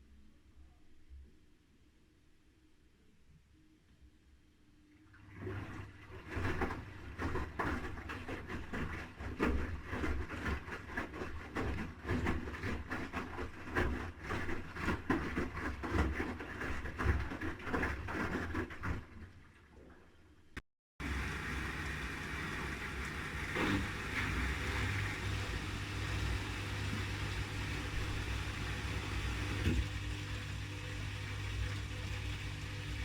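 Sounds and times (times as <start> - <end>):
laundry tumbling and sloshing: 5.2 - 19.9
washing machine motor rumble: 21.0 - 33.0.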